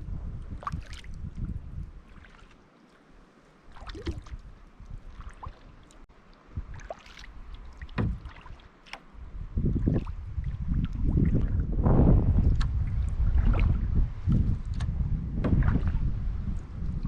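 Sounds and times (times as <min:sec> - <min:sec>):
wind rumble on microphone: 0:00.0 - 0:02.5, 0:03.7 - 0:17.0
splashes and drips: 0:00.5 - 0:11.7, 0:12.3 - 0:17.0
paddle dipping into water: 0:00.5 - 0:17.0.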